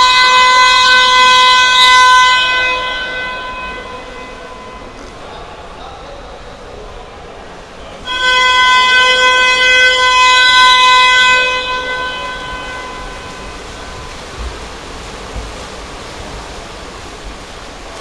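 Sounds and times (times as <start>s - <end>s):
electronic game horn blast: 0.0s - 5.1s, 8.1s - 14.5s.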